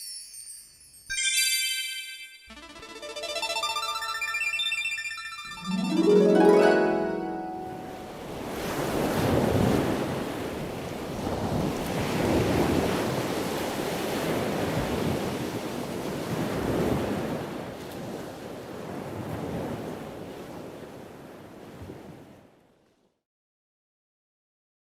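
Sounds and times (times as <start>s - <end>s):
sea rushing: 5.7s - 22.3s
wind buffeting the microphone: 8.3s - 22.4s.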